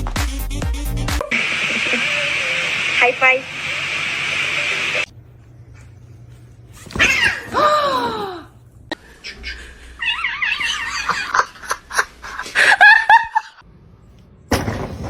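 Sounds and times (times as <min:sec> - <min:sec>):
cat calling: 0:10.0 - 0:11.2.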